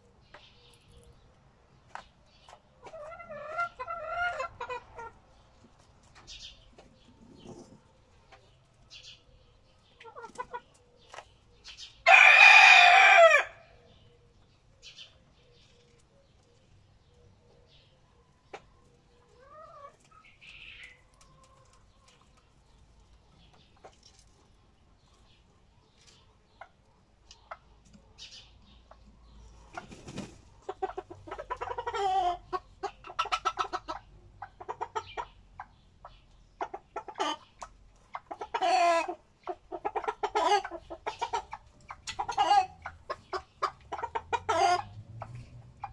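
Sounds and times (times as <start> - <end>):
soft clucking calls: 1.8 - 12.0, 25.0 - 45.9
rooster crowing: 12.0 - 13.6.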